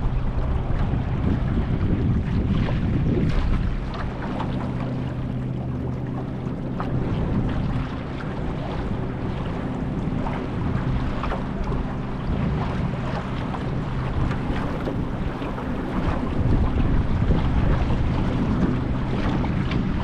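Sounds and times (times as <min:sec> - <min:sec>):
boat engine running: 0:00.0 - 0:20.0
water splashing against hull: 0:00.0 - 0:20.0
wind buffeting microphone: 0:00.0 - 0:20.0.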